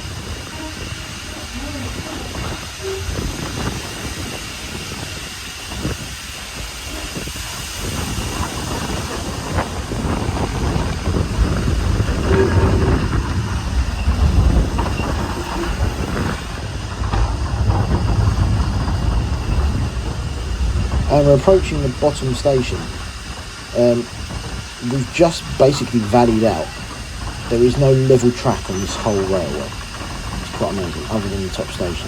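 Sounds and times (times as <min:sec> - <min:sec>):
train wheel squeal: 0:00.0 - 0:32.0
train wheels rumbling on rails: 0:00.0 - 0:32.0.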